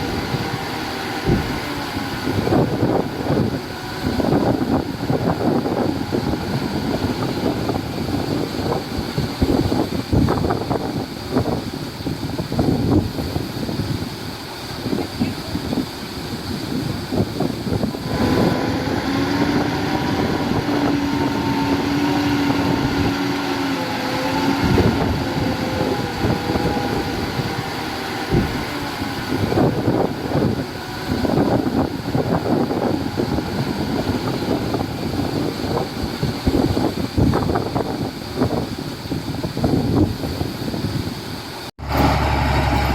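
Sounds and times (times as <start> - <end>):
diesel construction machinery running: 0.0 - 42.9
wind noise on microphone: 0.0 - 42.9.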